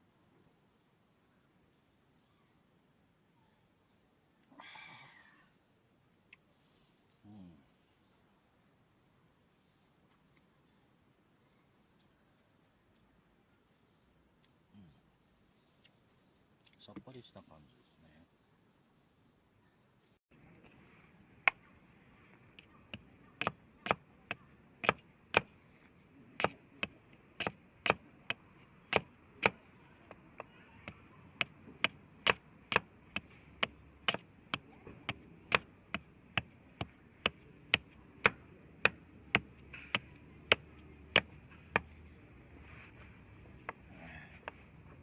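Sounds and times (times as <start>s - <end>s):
sharp chopping strikes: 24.8s - 25.5s, 26.4s - 41.9s.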